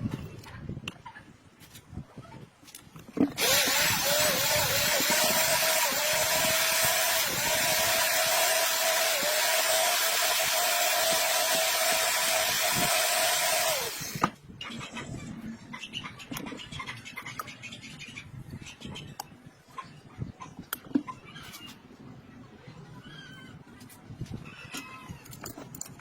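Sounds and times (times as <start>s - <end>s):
power tool motor whine: 3.4s - 14.4s.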